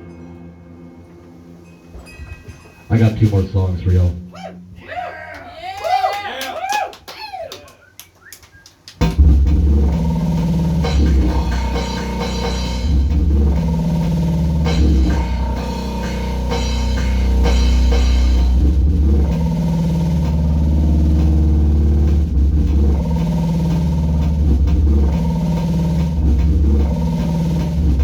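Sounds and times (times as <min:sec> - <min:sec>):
loud noise music with drums: 0:09.0 - 0:28.0.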